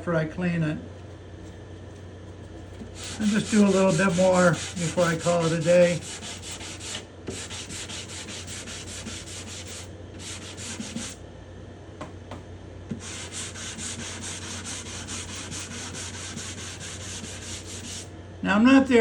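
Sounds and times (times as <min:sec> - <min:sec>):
sandpaper rubbing on wood: 0:02.9 - 0:11.2, 0:13.0 - 0:18.1.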